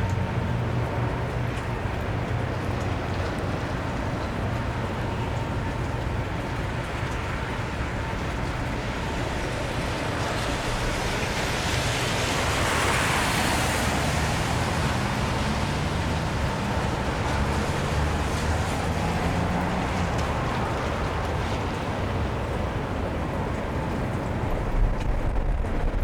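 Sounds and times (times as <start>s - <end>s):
rain on wet street: 0.0s - 26.0s
traffic rumble: 0.0s - 26.0s
car tyres hissing on wet road: 8.8s - 23.4s.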